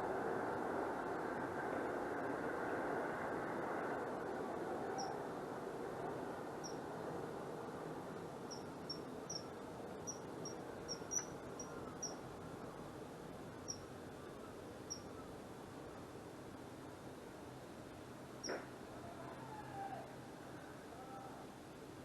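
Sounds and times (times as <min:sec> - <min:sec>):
outdoor background noise: 0:00.0 - 0:22.0
bird chirping: 0:05.0 - 0:05.2, 0:08.5 - 0:12.2, 0:13.6 - 0:13.8, 0:14.9 - 0:15.1.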